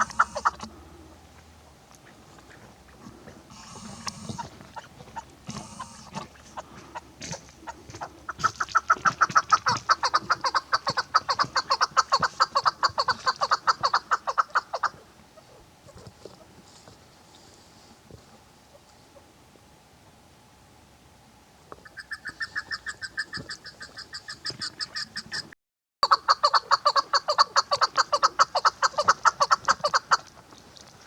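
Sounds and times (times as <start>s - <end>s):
partridge clucking calls: 0.0s - 0.7s, 3.5s - 16.5s, 21.7s - 30.5s.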